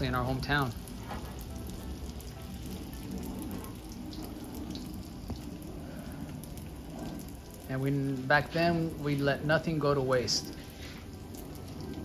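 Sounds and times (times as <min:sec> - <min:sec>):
dough sizzling in oil: 0:00.0 - 0:12.0.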